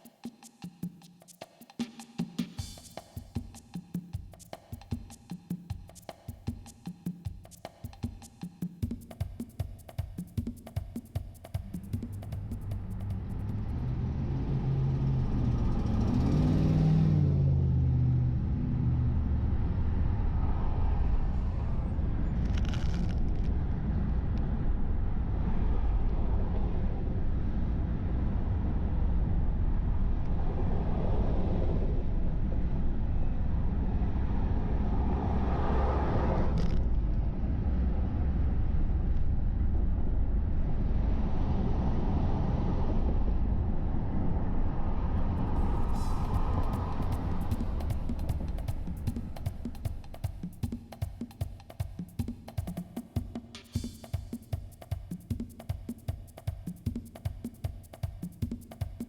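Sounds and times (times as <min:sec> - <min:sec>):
car road rumble and tyre noise: 0:12.2 - 0:50.2.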